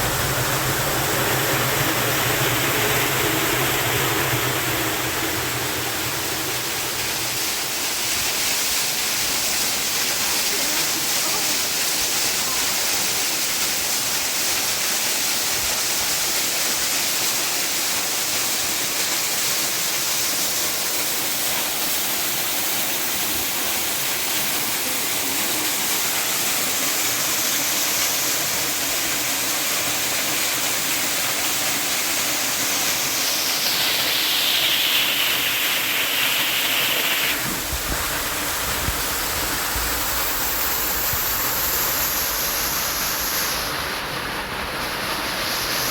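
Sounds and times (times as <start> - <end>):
low rumble: 0.0 - 7.4
rushing water: 0.0 - 45.9.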